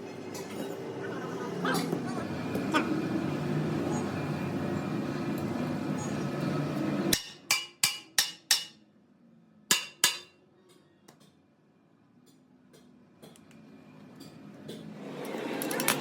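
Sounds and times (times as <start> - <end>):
hammer ringing on steel: 7.1 - 8.8, 9.7 - 10.4.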